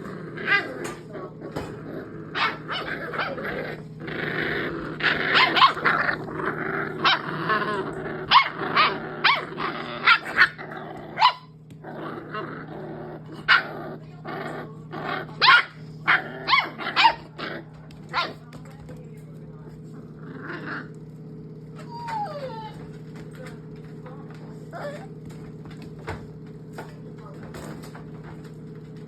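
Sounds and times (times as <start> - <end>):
dogs barking: 0.0 - 3.8, 5.0 - 6.2, 6.9 - 11.6, 13.2 - 13.8, 15.2 - 18.5
dogs growling: 0.0 - 29.0.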